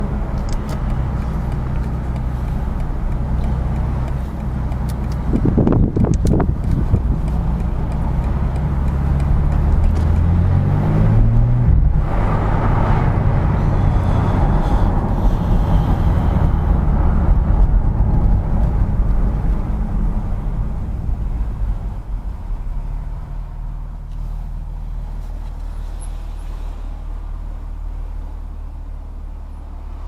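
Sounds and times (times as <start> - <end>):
car engine accelerating: 0.0 - 30.0
road noise: 0.0 - 30.0
sharp clicks: 0.3 - 10.3.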